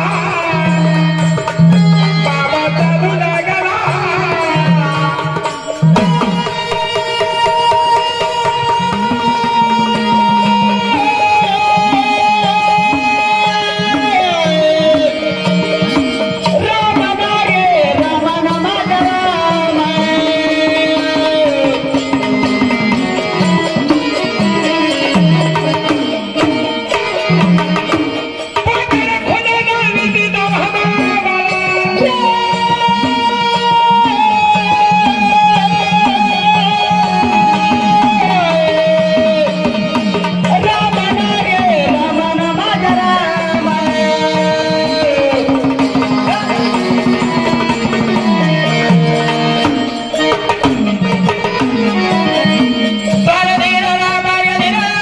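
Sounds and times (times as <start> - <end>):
hand drum beat: 0.0 - 53.8
sliding melodic lead: 0.0 - 55.0.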